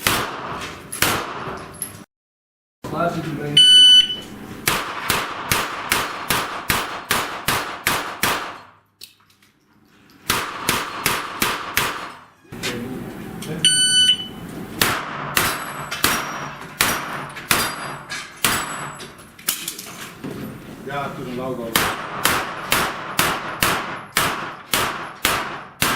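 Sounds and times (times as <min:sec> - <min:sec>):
gunshots hitting steel plates: 0:00.0 - 0:01.7, 0:04.1 - 0:08.8, 0:10.3 - 0:12.4, 0:14.8 - 0:19.2, 0:21.7 - 0:25.9
shot timer beep: 0:03.6 - 0:04.3, 0:13.6 - 0:14.4.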